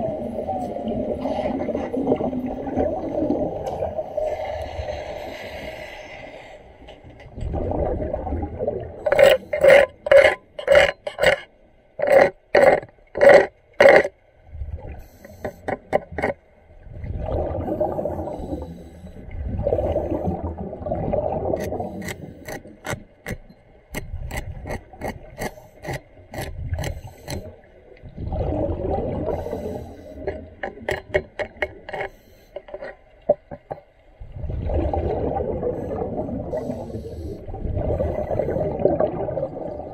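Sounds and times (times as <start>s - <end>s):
diver's exhaled bubbles rumbling: 0.0s - 4.4s, 7.3s - 10.2s, 16.0s - 18.6s, 19.3s - 22.9s, 28.0s - 31.9s, 34.2s - 39.9s
rhythmic scraping strokes: 9.0s - 14.1s.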